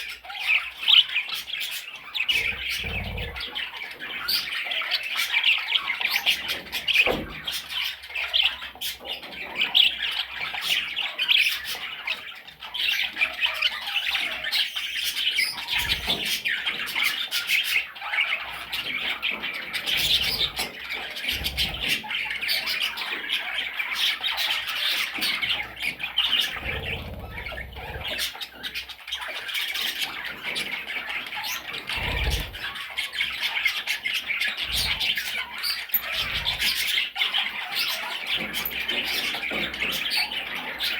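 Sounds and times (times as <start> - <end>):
budgerigar chattering: 1.8 - 7.2, 19.8 - 30.2, 31.4 - 40.4.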